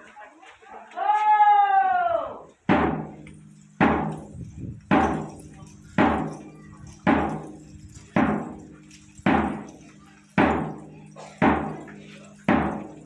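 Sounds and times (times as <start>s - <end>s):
heavy percussion hits: 2.7s - 13.0s.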